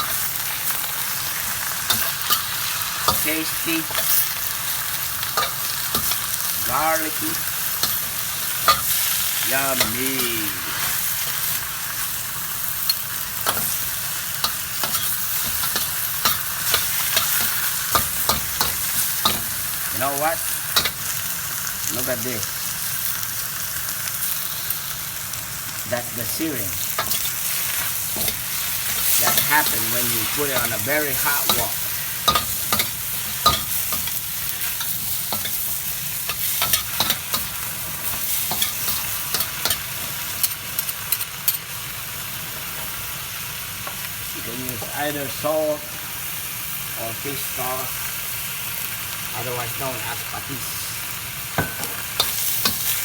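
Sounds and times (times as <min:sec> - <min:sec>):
utensil scraping a wok: 0:00.0 - 0:21.2, 0:26.3 - 0:41.6, 0:51.6 - 0:53.0
vegetables sizzling in a wok: 0:00.0 - 0:53.0.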